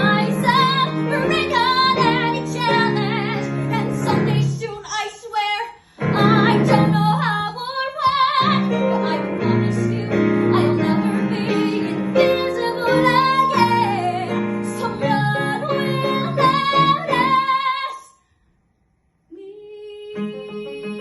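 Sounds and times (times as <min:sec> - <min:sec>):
piano and strings music: 0:00.0 - 0:04.6, 0:06.0 - 0:07.4, 0:08.0 - 0:17.8, 0:20.1 - 0:21.0
girl singing: 0:00.0 - 0:18.2, 0:19.3 - 0:21.0.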